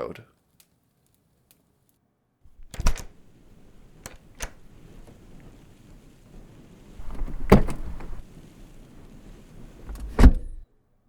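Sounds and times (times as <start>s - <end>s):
car door shutting with thud: 7.0s - 10.6s.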